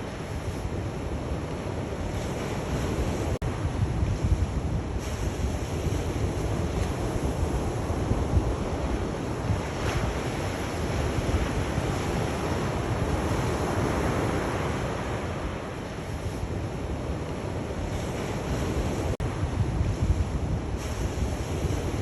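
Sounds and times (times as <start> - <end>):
sea waves breaking on shore: 0.0 - 22.0
wind rumbling on microphone: 0.0 - 22.0.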